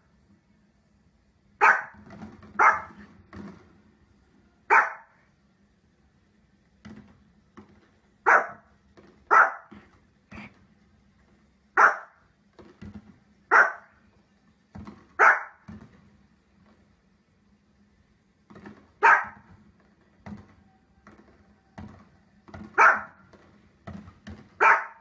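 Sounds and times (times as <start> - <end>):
small dog barking: 1.6 - 2.0, 2.6 - 3.0, 4.7 - 5.2, 8.2 - 8.7, 9.3 - 9.8, 11.8 - 12.2, 13.5 - 13.9, 15.2 - 15.6, 19.0 - 19.5, 22.8 - 23.2, 24.6 - 25.0.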